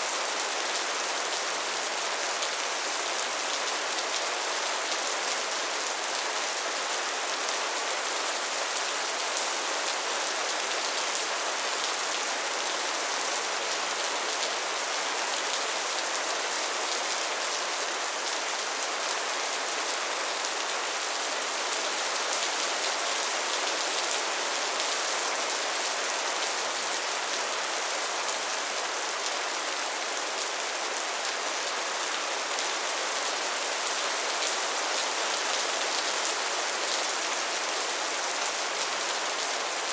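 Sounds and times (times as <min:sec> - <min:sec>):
rain on a tin roof: 0:00.0 - 0:39.9.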